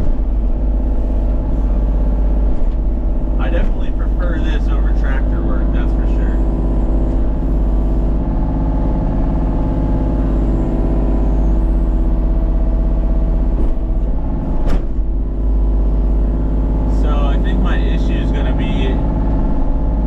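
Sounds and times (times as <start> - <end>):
heavy engine running steadily: 0.0 - 20.0.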